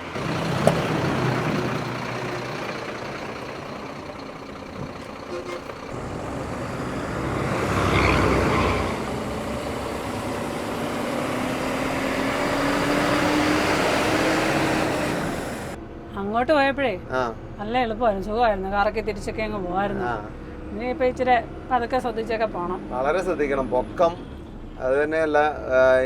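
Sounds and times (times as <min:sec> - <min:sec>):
lorry engine pulling away: 0:00.0 - 0:15.8.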